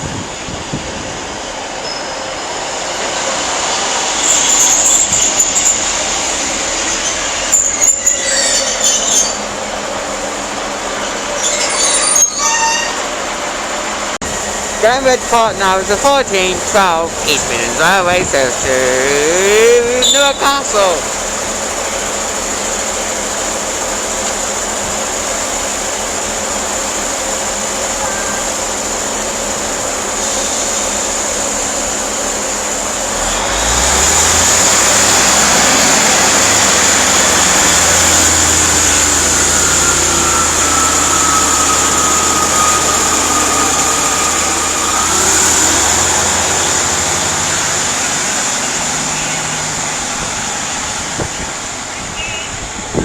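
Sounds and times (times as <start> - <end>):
diesel train engine: 0.0 - 53.0
high whine: 14.2 - 21.2, 37.0 - 49.3.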